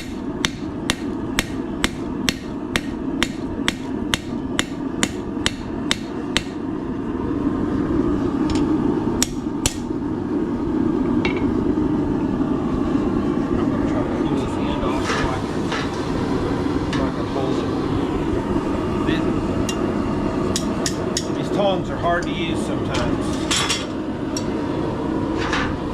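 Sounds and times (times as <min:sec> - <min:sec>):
hammer striking steel on anvil: 0:00.0 - 0:06.6, 0:09.2 - 0:09.9
steady low hum: 0:00.0 - 0:25.9.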